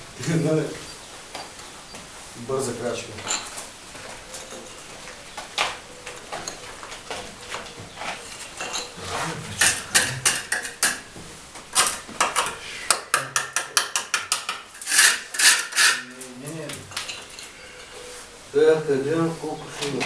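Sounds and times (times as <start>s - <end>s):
hand tools clicking and clinking: 6.2s - 9.0s, 9.6s - 11.1s, 11.7s - 17.6s.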